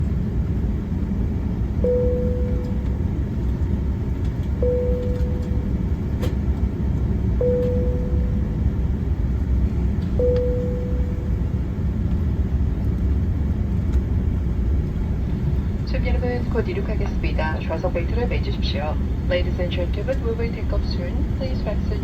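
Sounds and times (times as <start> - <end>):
aircraft cabin rumble: 0.0 - 22.0
short mid-pitched tone: 7.4 - 8.6, 10.2 - 11.4.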